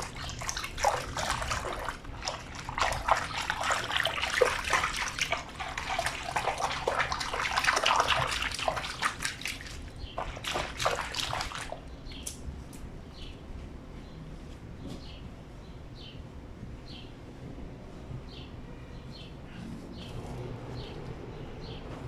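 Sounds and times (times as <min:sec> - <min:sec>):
water splashing in a sink: 0:00.0 - 0:11.9.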